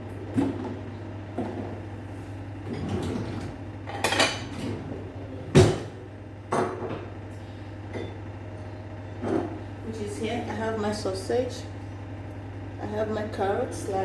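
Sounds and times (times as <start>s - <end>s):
dishes and utensils clinking: 3.9s - 4.7s.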